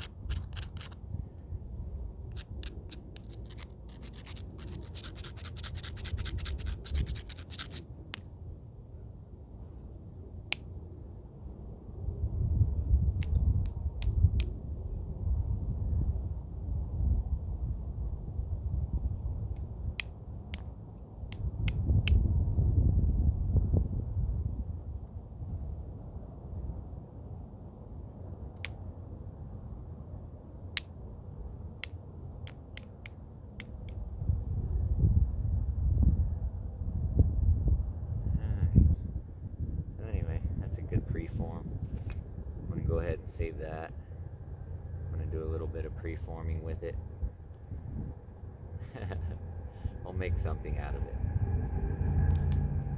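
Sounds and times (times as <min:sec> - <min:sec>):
low rumble: 0:34.0 - 0:52.9.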